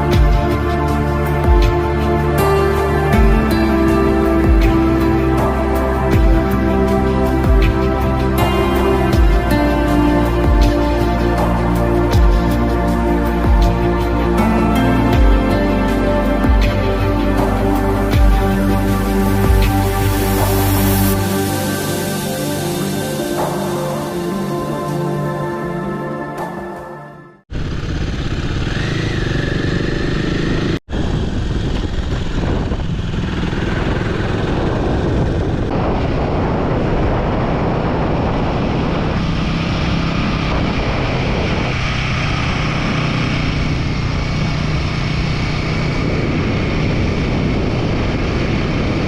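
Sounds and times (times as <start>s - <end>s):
motorcycle running on road: 0.0s - 23.5s, 27.5s - 49.0s
background music: 0.0s - 27.5s.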